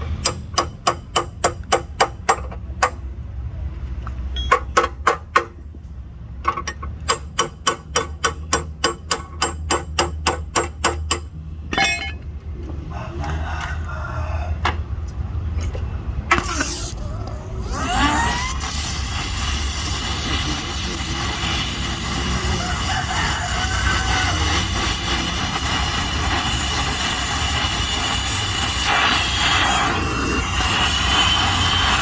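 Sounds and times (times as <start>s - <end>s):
hiss: 17.8s - 32.0s.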